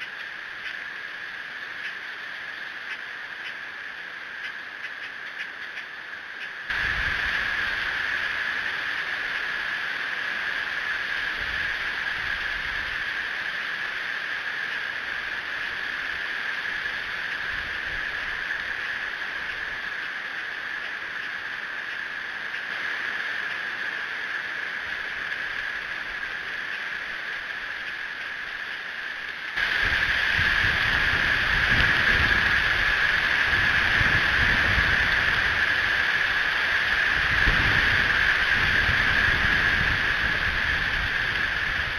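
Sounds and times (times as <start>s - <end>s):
low rumbling wind buffets: 0.0s - 41.9s
strong wind on microphone: 6.7s - 20.0s, 29.6s - 41.9s.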